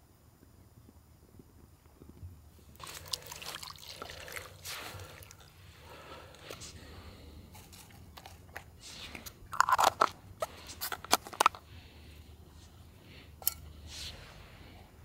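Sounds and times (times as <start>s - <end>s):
crunching and crackling: 2.7s - 12.0s.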